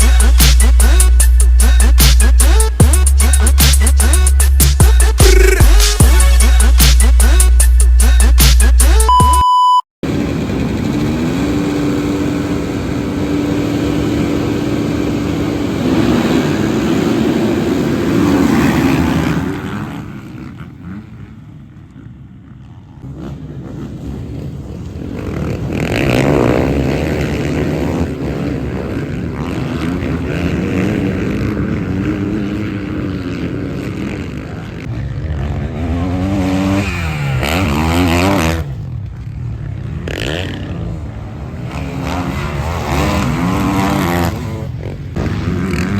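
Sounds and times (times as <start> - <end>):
motocross bikes revving: 0.0 - 9.2, 10.1 - 45.9
motorbikes passing close: 10.0 - 45.9.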